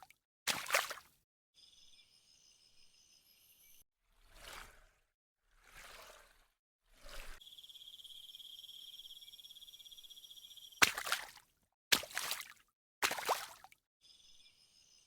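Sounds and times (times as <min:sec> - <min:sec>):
insect high-pitched trill: 0:07.4 - 0:10.8.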